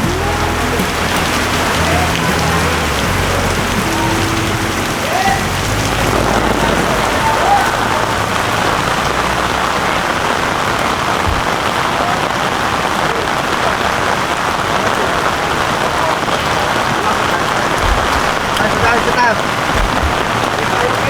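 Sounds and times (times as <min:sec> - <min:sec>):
heavy rain: 0:00.0 - 0:21.0.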